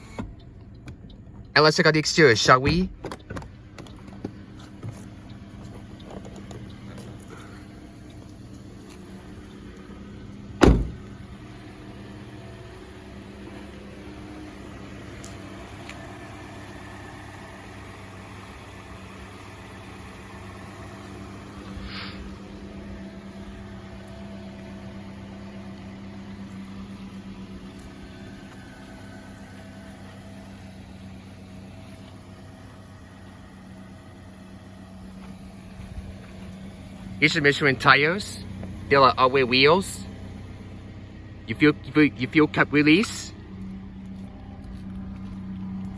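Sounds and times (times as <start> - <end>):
car engine idling: 0.0 - 45.9
loud thump: 10.6 - 11.1.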